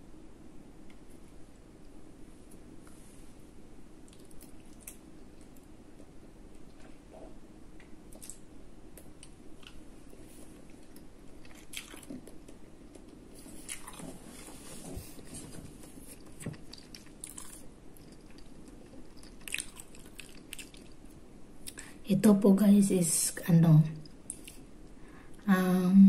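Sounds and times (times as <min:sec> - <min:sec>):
chewing and wet mouth noises: 0:04.0 - 0:22.0, 0:24.0 - 0:25.0.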